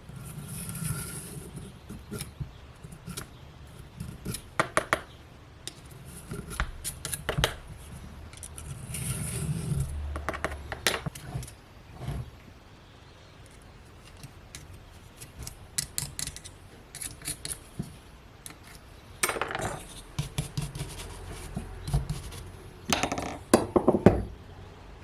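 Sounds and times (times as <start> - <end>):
scraping rub: 0.0 - 4.5, 5.9 - 10.0, 19.6 - 22.7
metallic clicks and knocks: 19.2 - 20.0.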